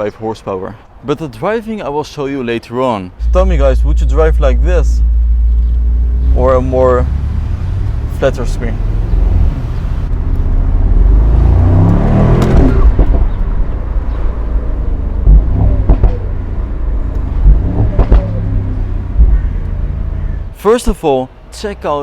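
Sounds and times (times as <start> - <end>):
low rumble: 3.2 - 20.5
car passing by: 5.2 - 13.1.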